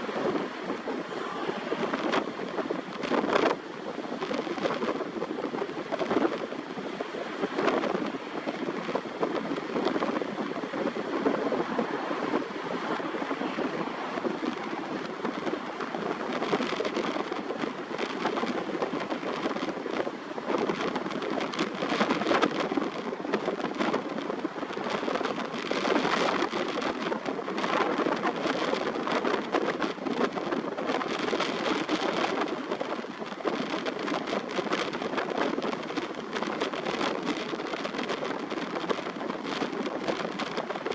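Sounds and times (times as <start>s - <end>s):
strong wind: 0.0s - 40.9s
surf: 0.0s - 40.9s.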